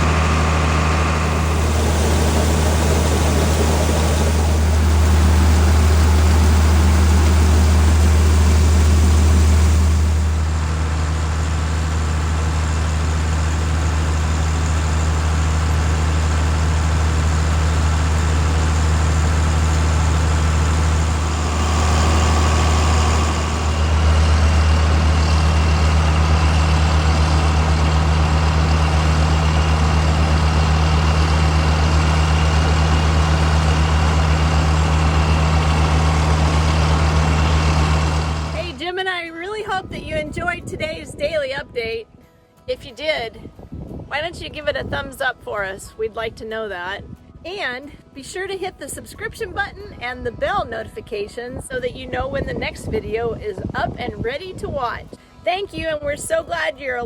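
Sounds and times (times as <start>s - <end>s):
heavy diesel engine humming: 0.0s - 39.1s.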